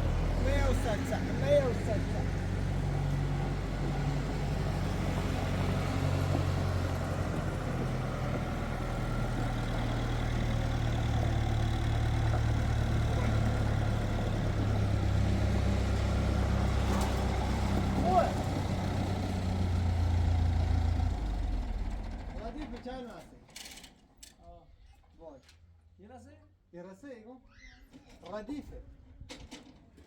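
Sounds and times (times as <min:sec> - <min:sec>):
engine humming: 0:00.0 - 0:22.8.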